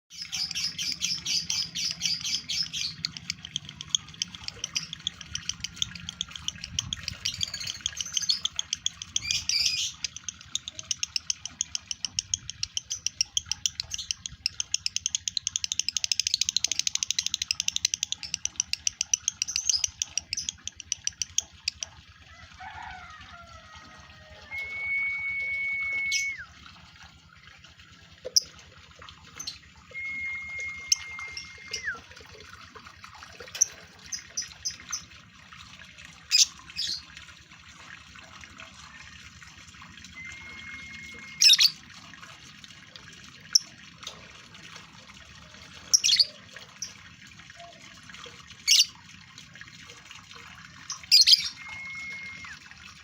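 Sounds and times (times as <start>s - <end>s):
bird chattering high chirps: 0.1s - 21.3s
soft gliding bird calls: 29.3s - 32.2s, 40.0s - 41.8s, 51.0s - 52.6s.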